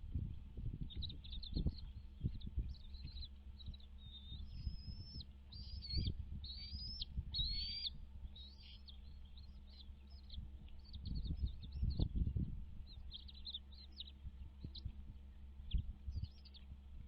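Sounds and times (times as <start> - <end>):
low rumble: 0.0 - 17.0
high bird chirps: 0.9 - 12.1
high whistled bird calls: 0.9 - 12.1.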